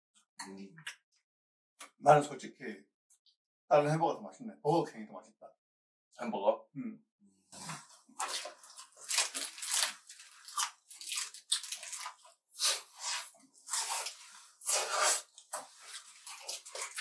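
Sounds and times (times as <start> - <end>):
crunchy bites and chewing: 7.6 - 17.0.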